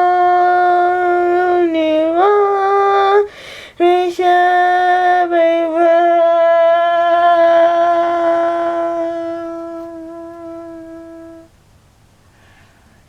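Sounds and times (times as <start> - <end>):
woman singing long notes: 0.0 - 11.5
quick breath: 3.3 - 3.8, 12.2 - 13.0.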